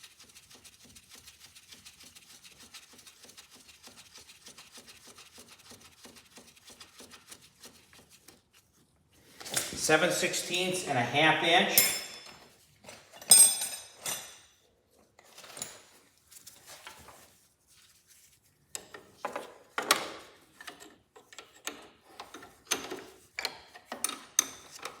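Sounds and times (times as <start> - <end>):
metal clink of tools: 11.6 - 12.5, 13.1 - 14.5.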